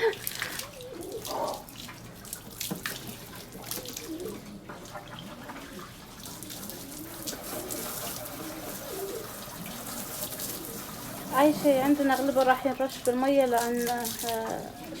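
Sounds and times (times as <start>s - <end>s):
pigeons cooing: 0.0s - 2.2s, 3.4s - 12.8s, 14.6s - 15.0s
running water hissing: 6.7s - 15.0s.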